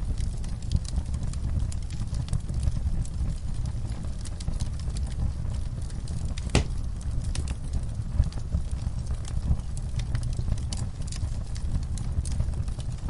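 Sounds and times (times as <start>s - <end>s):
fire rumbling and crackling: 0.0s - 13.0s
loud wood pop: 6.5s - 6.8s.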